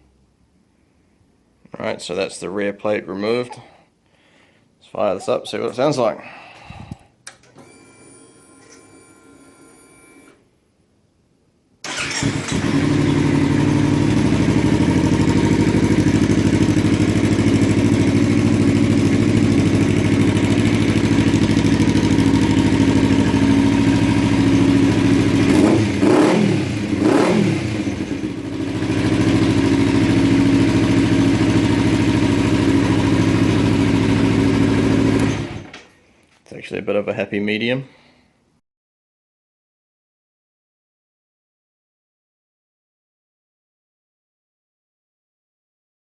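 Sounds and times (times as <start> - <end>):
motorcycle engine starting and idling: 11.8 - 35.9.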